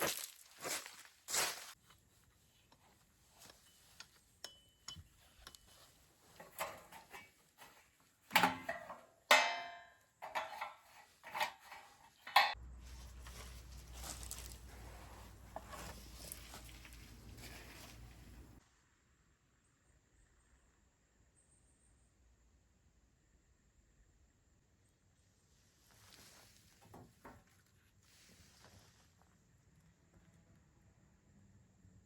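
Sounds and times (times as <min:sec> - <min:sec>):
metal cookware clinking: 0:03.6 - 0:05.8, 0:06.4 - 0:12.6.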